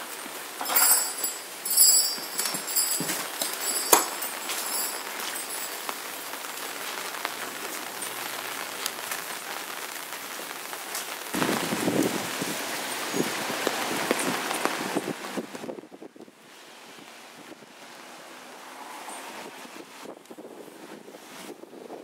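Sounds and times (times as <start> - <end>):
steady rain patter: 0.0 - 21.5
short rattles: 0.6 - 5.9.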